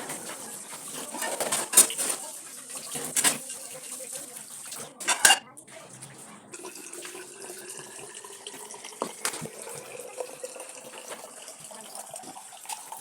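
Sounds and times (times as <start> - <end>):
dishes clinking: 0.0 - 2.2, 5.0 - 5.5
tap running into sink: 8.6 - 9.9.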